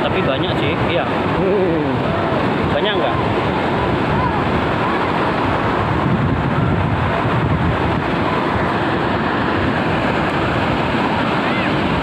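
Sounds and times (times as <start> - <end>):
surf: 0.0 - 12.0
wind noise on microphone: 0.0 - 12.0.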